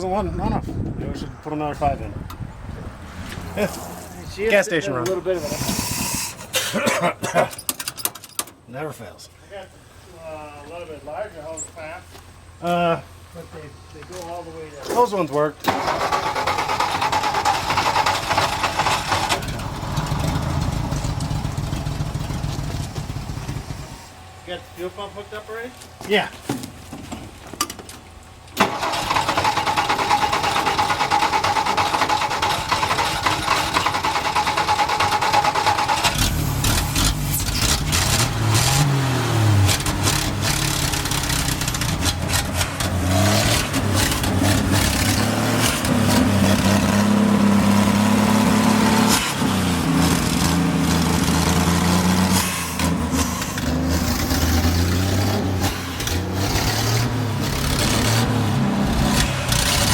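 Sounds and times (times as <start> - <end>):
engine cranking and revving: 15.0 - 24.0, 28.6 - 59.9.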